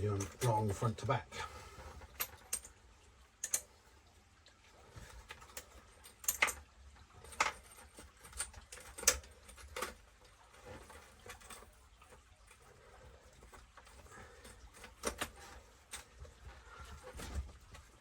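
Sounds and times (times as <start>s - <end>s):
small parts and tools clicking: 0.0s - 0.6s, 2.0s - 2.8s, 3.4s - 3.8s, 5.1s - 16.4s.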